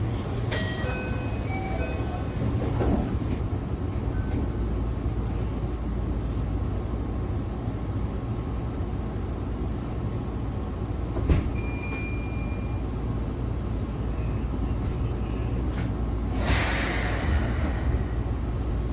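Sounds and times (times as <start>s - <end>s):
train wheels rumbling: 0.0s - 12.5s, 14.0s - 18.9s
high ringing tone: 11.6s - 12.9s.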